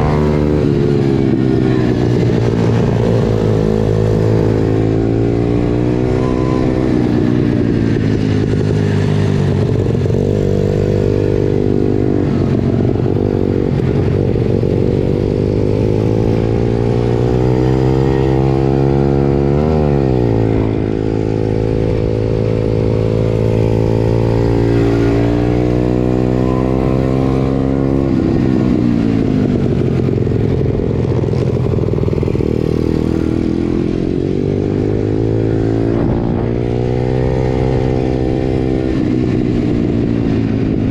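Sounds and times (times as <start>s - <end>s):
pit bike engine revving: 31.4s - 40.3s.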